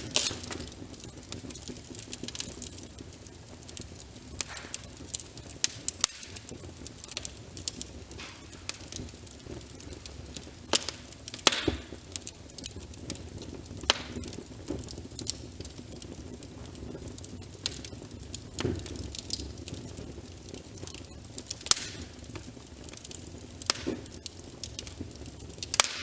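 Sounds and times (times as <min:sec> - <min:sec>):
rain hissing: 0:00.0 - 0:12.4
wood fire crackling: 0:00.0 - 0:26.0.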